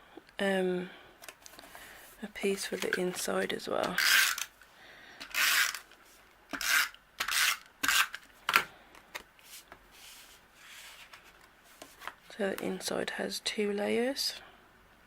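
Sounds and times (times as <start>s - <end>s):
paper rubbing and sliding: 9.4s - 12.1s.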